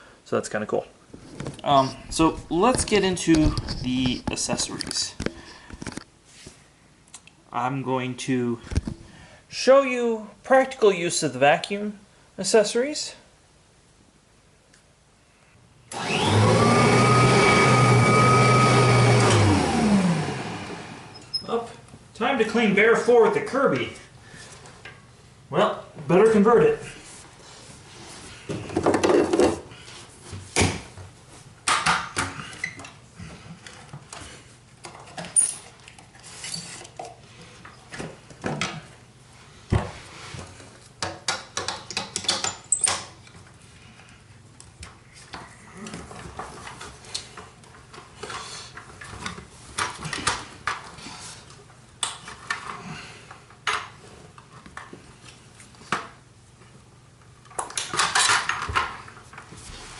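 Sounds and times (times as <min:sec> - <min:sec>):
plastic and metal parts rattling: 0:57.8 - 0:59.3.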